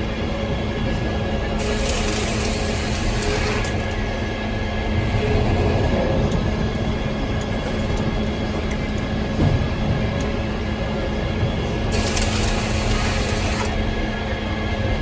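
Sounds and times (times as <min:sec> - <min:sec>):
circular sawmill sawing wood: 0:01.6 - 0:04.0, 0:11.9 - 0:13.8.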